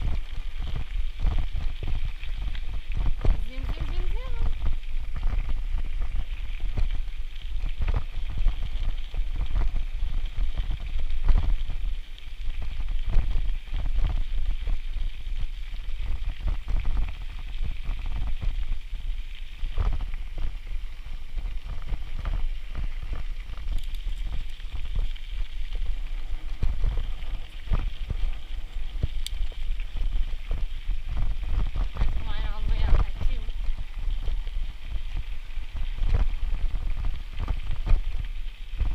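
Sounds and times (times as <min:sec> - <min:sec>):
wind buffeting microphone: 0:00.0 - 0:38.9
bicycle clicks and rattles: 0:21.5 - 0:29.9.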